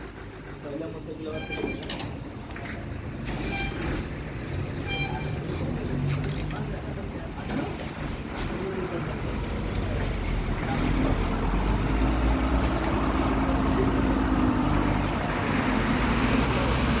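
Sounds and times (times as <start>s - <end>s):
diesel truck engine running: 0.0s - 1.3s, 8.5s - 17.0s.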